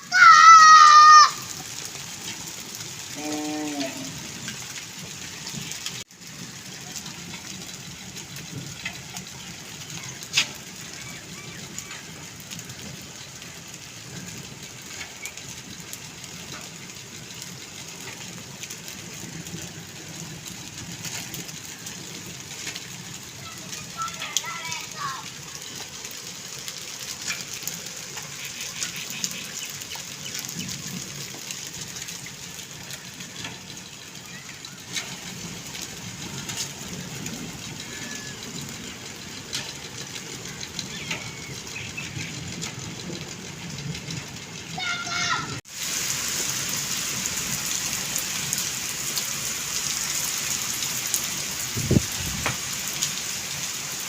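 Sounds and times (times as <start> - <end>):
heavy rain falling: 0.0 - 54.0
raindrops ticking on hard surfaces: 0.0 - 54.0.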